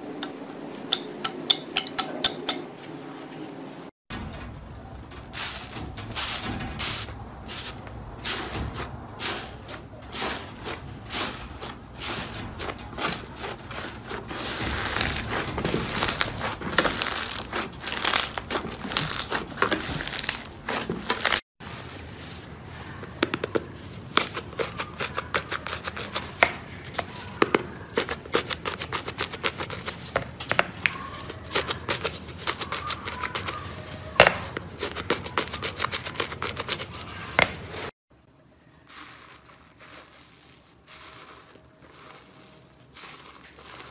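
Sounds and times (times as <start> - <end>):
slime squished crackling: 13.0 - 21.4.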